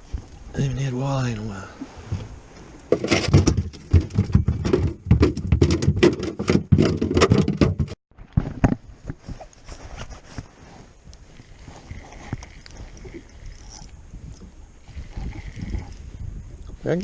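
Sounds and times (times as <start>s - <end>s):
sharp knocks and clatter: 2.9s - 8.8s.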